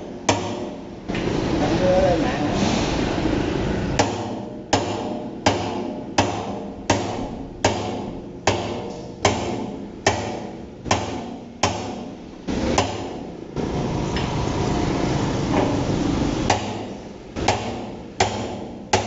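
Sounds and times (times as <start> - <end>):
hammer striking hollow steel drum: 0.0 - 1.0, 4.0 - 13.3, 15.5 - 19.0.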